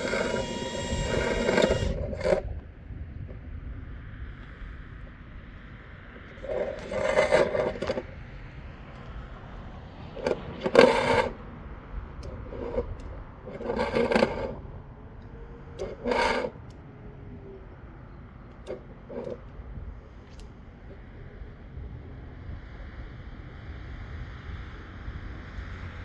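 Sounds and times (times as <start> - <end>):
scraping and rattling in vent duct: 0.0 - 2.6, 6.3 - 8.2, 9.9 - 11.4, 12.3 - 14.7, 15.7 - 16.6.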